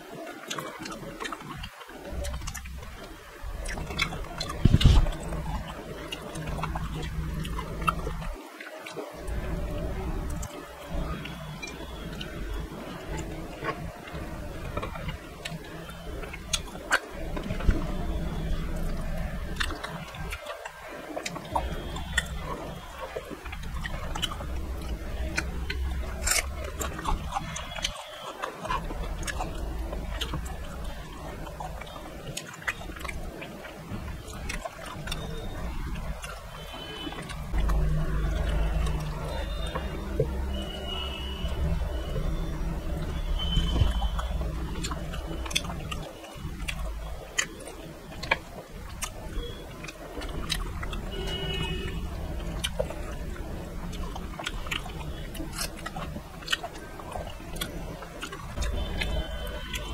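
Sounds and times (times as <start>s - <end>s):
chewing and lip smacks: 0.2s - 59.9s.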